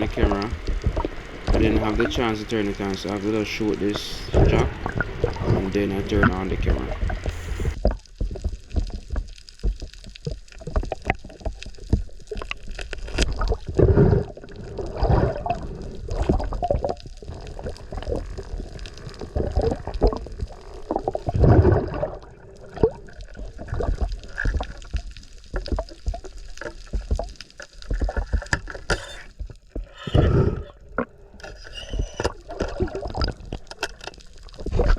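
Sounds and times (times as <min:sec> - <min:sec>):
irregular ticks: 0:00.0 - 0:07.8
water surges: 0:00.0 - 0:07.8, 0:13.3 - 0:27.2
water sloshing and gurgling: 0:00.0 - 0:09.1, 0:09.7 - 0:34.9.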